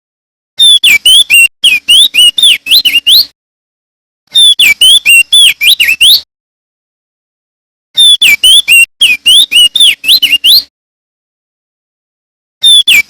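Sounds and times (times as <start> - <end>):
bird singing whistled notes: 0.6 - 3.3, 4.3 - 6.3, 8.0 - 10.7, 12.6 - 13.0.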